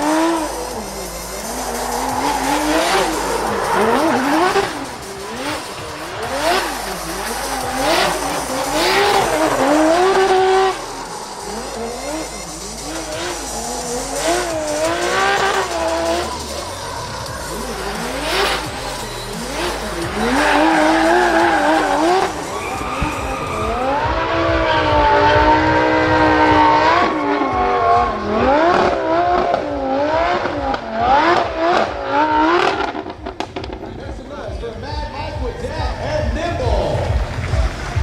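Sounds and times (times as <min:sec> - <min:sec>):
tyres screeching: 0:00.0 - 0:30.0
car engine revving: 0:00.0 - 0:38.0.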